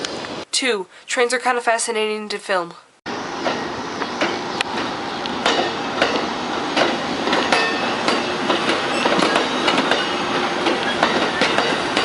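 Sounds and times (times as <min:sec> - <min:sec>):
train wheels clattering on rails: 0:03.4 - 0:12.0
metallic squeal of wheels: 0:07.4 - 0:12.0.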